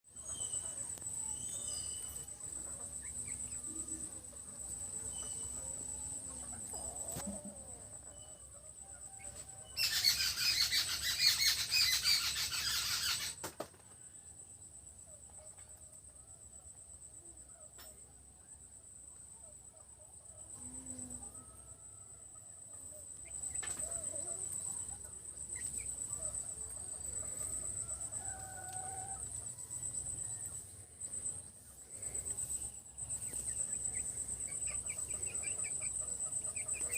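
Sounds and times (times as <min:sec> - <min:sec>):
cricket trill: 0:00.1 - 0:36.9
chickens clucking: 0:02.0 - 0:08.2, 0:33.0 - 0:36.9.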